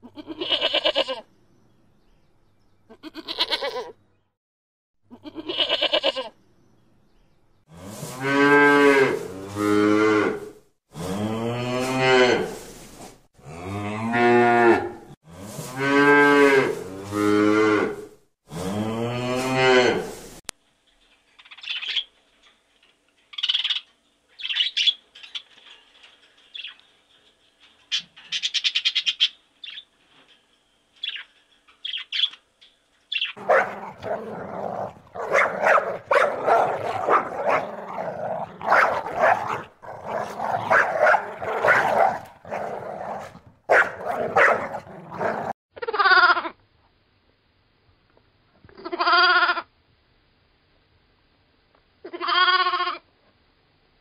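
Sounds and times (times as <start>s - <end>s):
cattle mooing: 13.4s - 15.2s, 33.4s - 45.6s.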